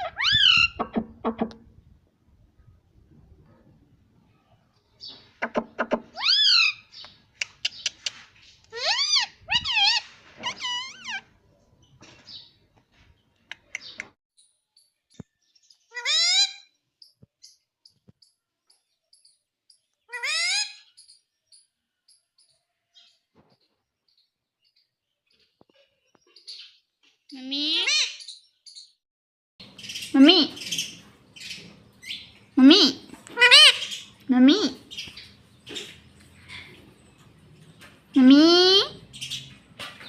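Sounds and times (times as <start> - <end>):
parakeet squawking and chattering: 0.0 - 1.0, 8.7 - 11.3, 33.3 - 35.9.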